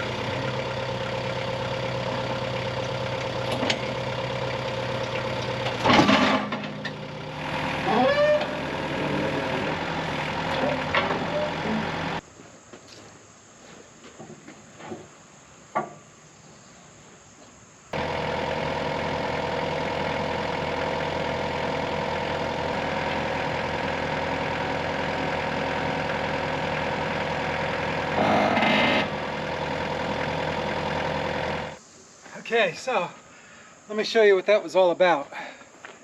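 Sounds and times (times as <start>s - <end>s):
engine running steadily: 0.0s - 12.2s, 17.9s - 31.8s.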